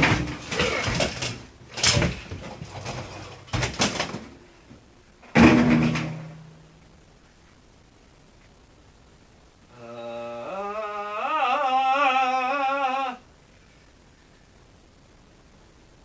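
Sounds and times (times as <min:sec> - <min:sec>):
metal cabinet bangs and clatters: 0:00.0 - 0:04.3, 0:05.3 - 0:06.5.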